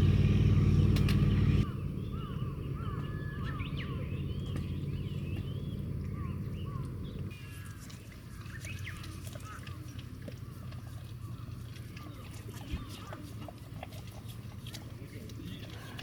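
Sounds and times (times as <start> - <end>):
vehicle engine running: 0.0 - 7.4
birds chirping: 0.0 - 13.3.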